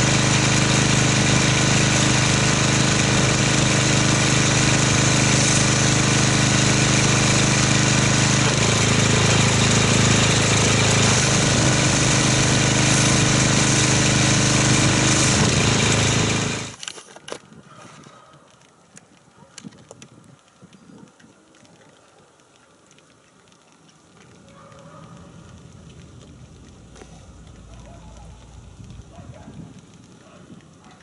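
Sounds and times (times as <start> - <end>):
pressure washer running: 0.0 - 16.8, 25.4 - 29.1.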